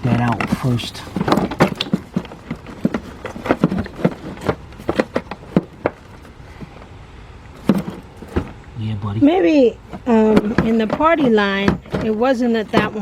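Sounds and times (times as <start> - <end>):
plastic cover knocking and clicking: 0.1 - 6.8, 9.9 - 13.0.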